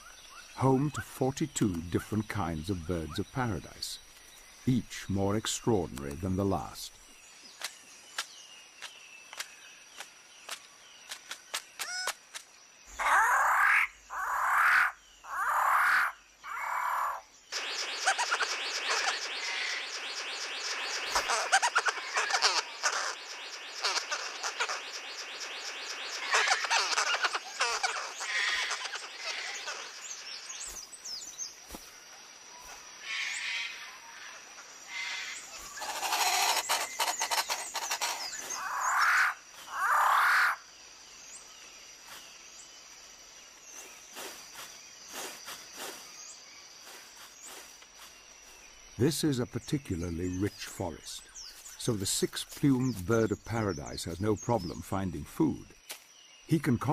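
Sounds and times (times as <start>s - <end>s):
rapid clicking trilling calls: 0.0s - 31.8s, 32.6s - 41.5s
loud animal calls: 12.9s - 30.2s, 34.9s - 40.7s.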